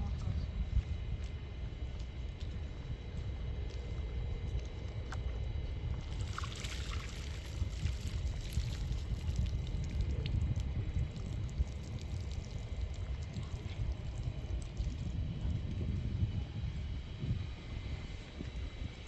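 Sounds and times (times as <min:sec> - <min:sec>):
steady low rumble: 0:00.0 - 0:19.0
water pouring: 0:06.1 - 0:10.2.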